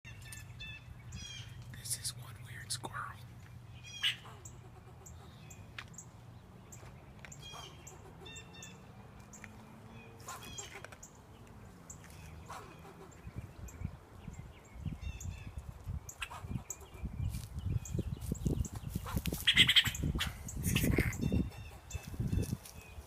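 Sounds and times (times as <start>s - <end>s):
squirrel barking: 3.8s - 5.6s, 7.4s - 8.8s, 10.2s - 10.9s, 12.4s - 13.4s, 16.1s - 17.2s, 19.0s - 22.2s.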